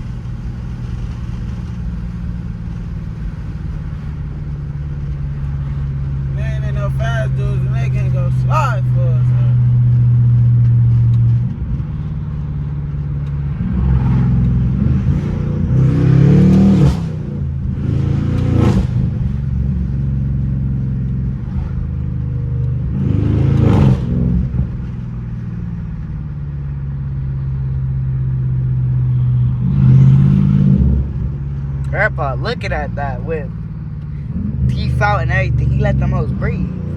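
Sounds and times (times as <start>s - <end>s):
exhaust cracks: 0.0s - 26.3s
car exhaust droning and revving: 0.0s - 36.9s.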